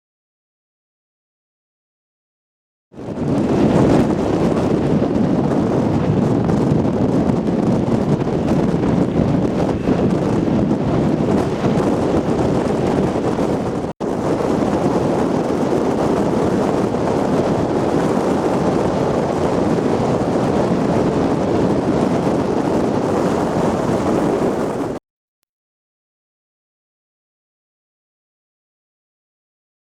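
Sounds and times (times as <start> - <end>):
strong wind buffeting microphone: 2.9 - 25.0
heavy surf: 3.0 - 25.0.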